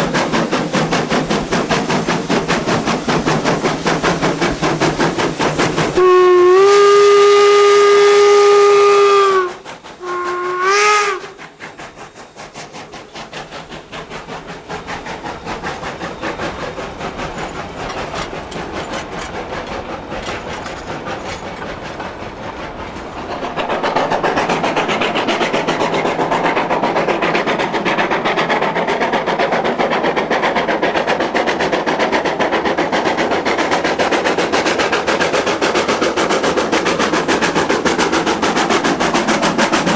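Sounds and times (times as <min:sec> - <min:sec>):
steam locomotive exhaust beats: 0:00.0 - 0:39.9
steam whistle blasts: 0:06.0 - 0:11.4.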